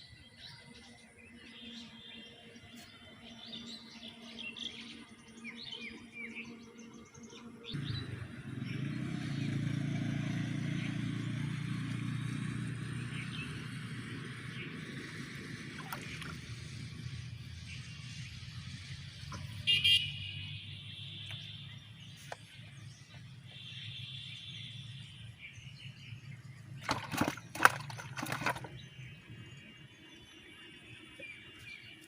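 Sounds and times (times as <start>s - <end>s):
small birds chirping: 12.2s - 32.0s.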